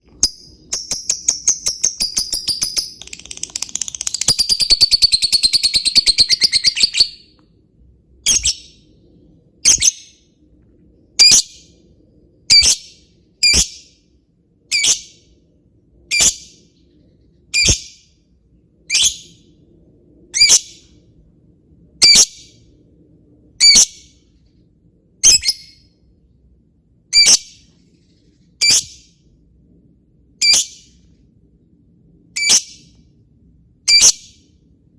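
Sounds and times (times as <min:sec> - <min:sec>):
sharp high bird chirps: 0:00.1 - 0:07.4, 0:08.3 - 0:08.8
lovebird staccato chatter: 0:01.1 - 0:05.0.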